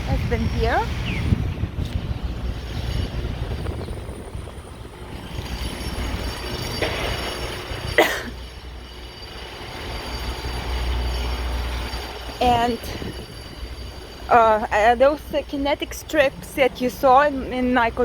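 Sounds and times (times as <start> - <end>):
street traffic rumble: 0.0 - 18.0
trucks idling: 0.0 - 18.0
high squeal: 2.2 - 17.8.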